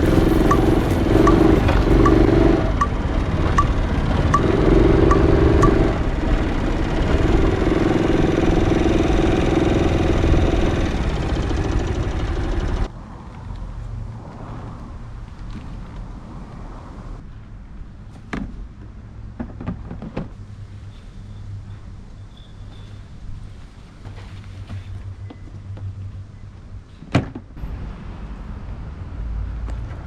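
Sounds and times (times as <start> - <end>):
motorcycle engine: 0.0 - 12.9
road noise: 0.0 - 30.0.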